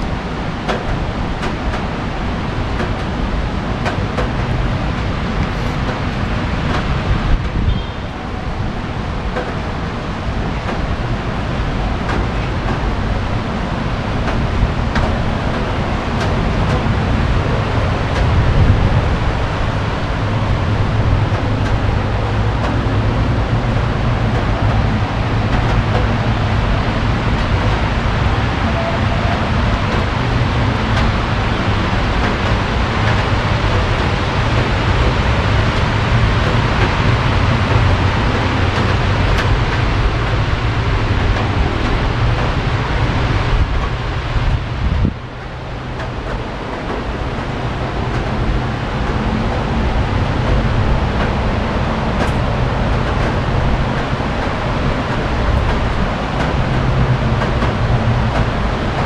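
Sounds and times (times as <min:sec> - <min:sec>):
rain falling: 0:00.0 - 0:59.0
traffic on wet streets: 0:00.0 - 0:59.0.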